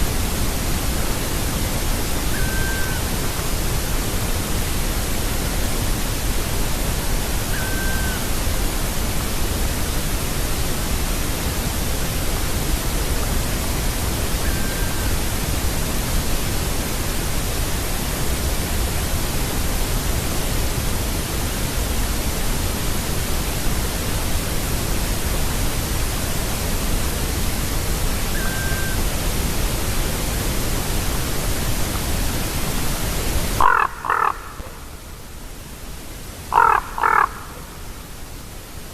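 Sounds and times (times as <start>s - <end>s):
steady loud hiss: 0.0s - 38.9s
raven call: 2.2s - 3.7s, 7.4s - 8.6s, 14.4s - 15.2s, 28.2s - 29.1s, 33.6s - 35.2s, 36.5s - 38.0s
distant woodpecker calls: 2.3s - 3.1s, 7.5s - 8.3s, 28.4s - 29.0s, 33.6s - 34.9s, 36.5s - 37.8s.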